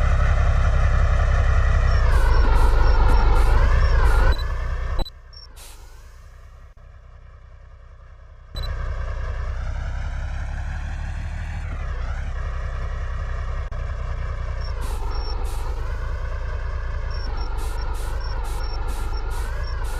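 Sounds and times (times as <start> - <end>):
truck engine rumbling: 0.0 - 19.9
short high beeps: 2.0 - 5.1.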